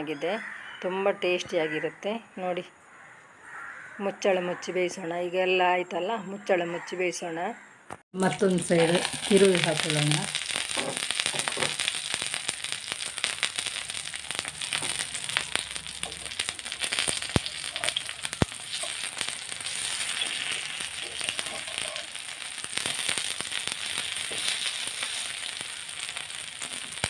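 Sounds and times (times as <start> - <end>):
oil sizzling and popping: 8.2 - 27.0
metal spatula scraping a pan: 14.3 - 23.1.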